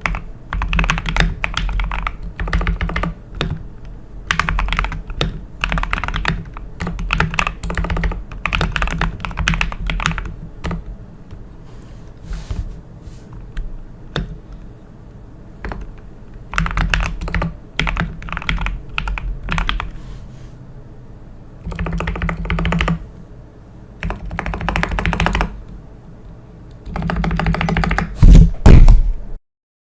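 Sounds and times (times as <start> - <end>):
mechanical keyboard typing: 0.0 - 3.6, 4.2 - 10.9, 13.4 - 14.4, 15.6 - 20.0, 21.6 - 23.0, 24.0 - 25.6, 26.8 - 28.2.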